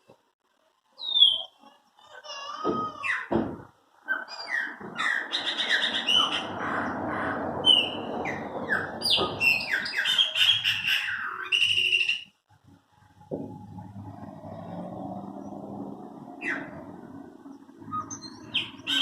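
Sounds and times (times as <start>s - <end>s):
blackbirds singing: 1.0s - 12.4s, 15.3s - 19.0s.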